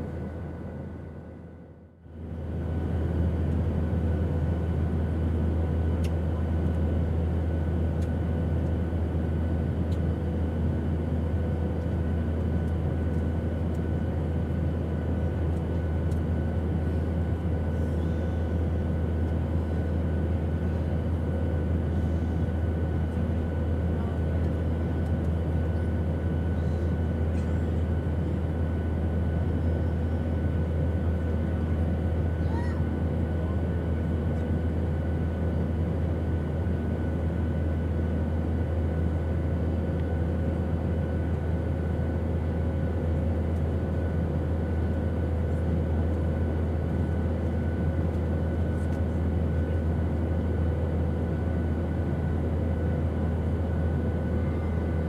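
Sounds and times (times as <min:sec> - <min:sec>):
airplane engine drone: 0:00.0 - 0:55.0.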